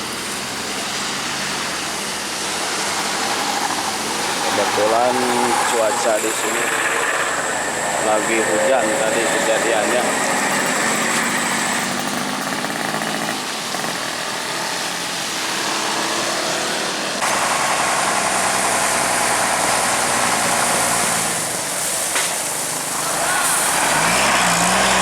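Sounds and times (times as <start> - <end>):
vehicle engine running: 0.0 - 16.4.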